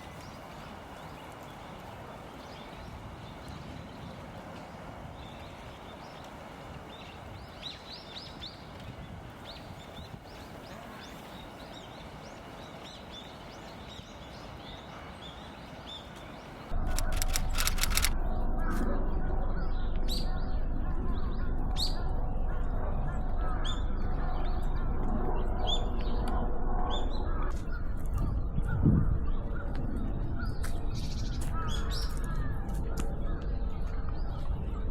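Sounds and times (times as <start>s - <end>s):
loud low rumble: 16.7s - 34.9s
sharp clicks: 16.8s - 18.2s.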